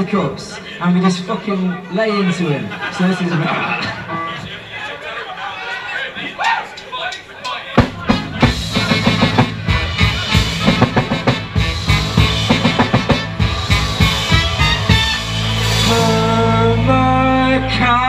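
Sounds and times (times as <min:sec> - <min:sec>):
drum kit beating: 0:06.6 - 0:18.0
live rock band playing: 0:07.8 - 0:18.0.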